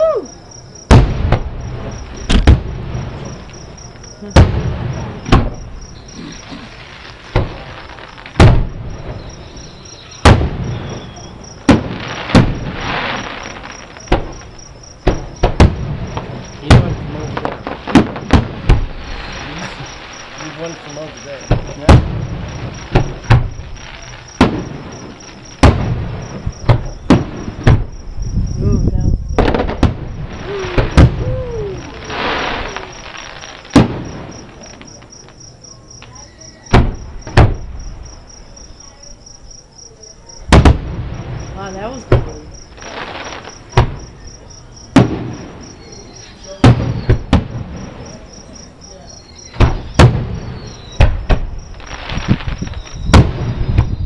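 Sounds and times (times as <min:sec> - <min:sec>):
fireworks crackling: 0:00.0 - 0:38.5, 0:40.3 - 0:54.0
distant fireworks booms: 0:00.0 - 0:38.9, 0:40.1 - 0:54.0
crickets chirping: 0:00.0 - 0:54.0
hiss of noise: 0:18.7 - 0:21.8.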